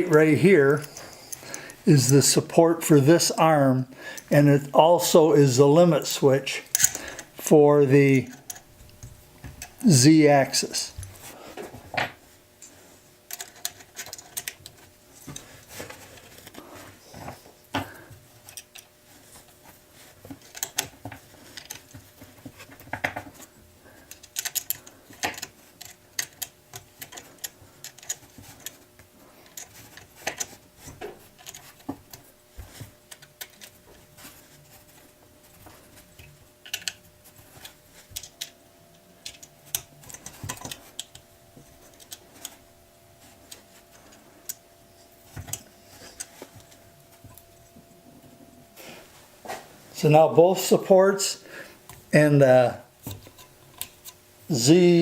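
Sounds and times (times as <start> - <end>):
metal parts and tools clicking: 6.6 - 7.3, 8.2 - 9.0, 13.3 - 15.5, 24.0 - 28.8, 36.2 - 38.5, 39.2 - 41.2.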